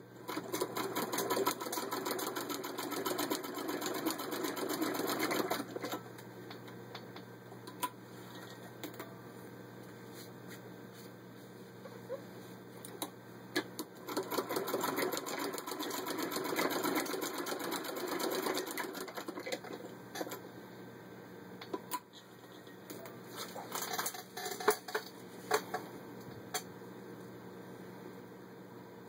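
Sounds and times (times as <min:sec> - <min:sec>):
sewing machine clicking and whirring: 0:00.2 - 0:06.1, 0:13.7 - 0:20.4.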